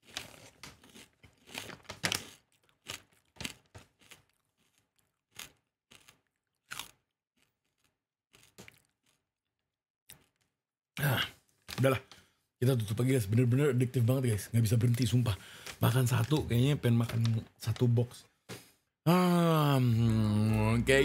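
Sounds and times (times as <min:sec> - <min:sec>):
chewing crispy chips: 0:00.0 - 0:11.3.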